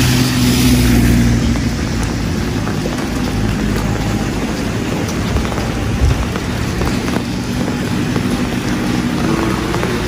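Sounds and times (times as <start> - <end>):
steady rain: 0.0 - 10.0
vehicle engine humming: 0.0 - 10.0.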